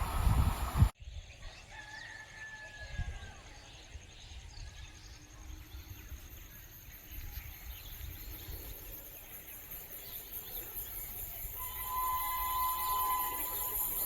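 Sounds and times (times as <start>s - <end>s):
faint bird chirps: 1.0s - 14.0s
insects trilling: 4.9s - 14.0s.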